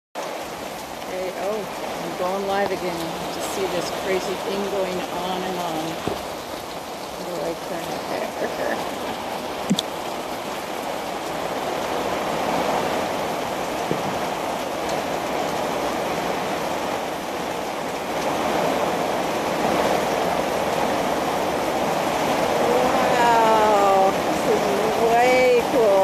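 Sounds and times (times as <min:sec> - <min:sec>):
heavy rain pouring: 0:00.2 - 0:26.0
person speaking: 0:01.1 - 0:06.1, 0:07.2 - 0:08.8, 0:13.9 - 0:14.2, 0:22.7 - 0:26.0.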